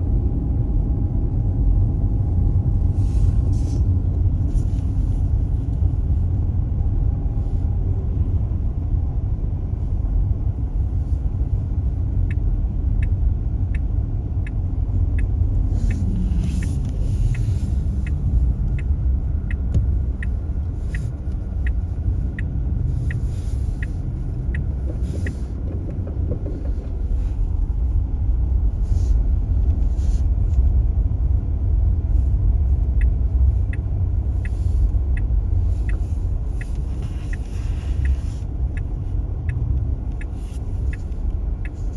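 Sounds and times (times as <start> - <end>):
tyre and road rumble: 0.0 - 41.9
regular ticking: 11.6 - 28.0, 31.9 - 41.9.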